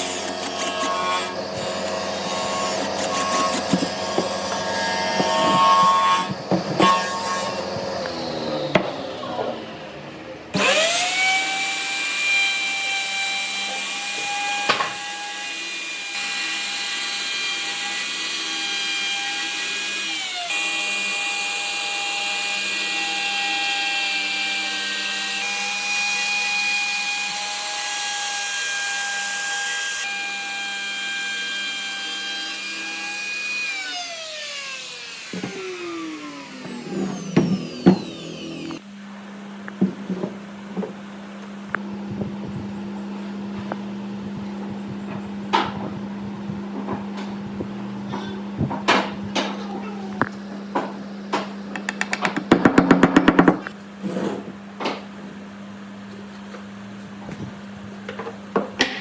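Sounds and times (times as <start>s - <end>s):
electric power tool whining: 0.0s - 9.8s, 10.5s - 12.6s, 30.0s - 38.8s.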